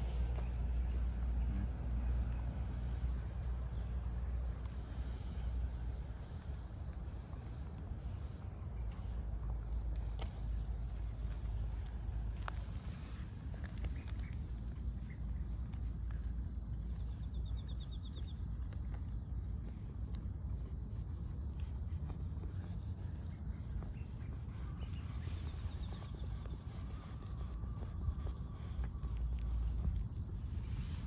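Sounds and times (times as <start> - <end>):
wind rumble on microphone: 21.8 - 31.0.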